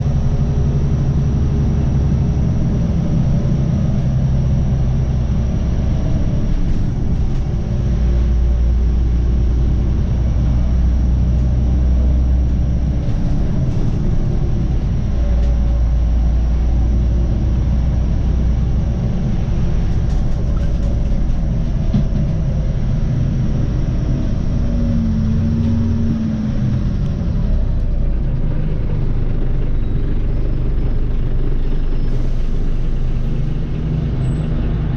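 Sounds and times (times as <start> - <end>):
bus engine rumbling: 0.0 - 34.9.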